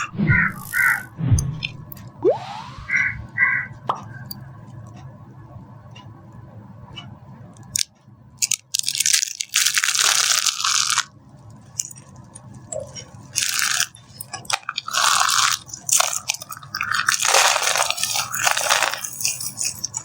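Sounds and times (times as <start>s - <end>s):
dry soap crackling and crunching: 8.4s - 11.1s, 13.4s - 20.0s.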